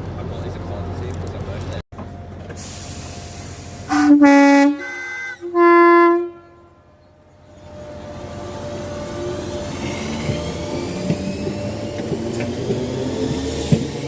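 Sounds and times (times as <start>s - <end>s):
two-tone train horn: 3.8s - 7.0s.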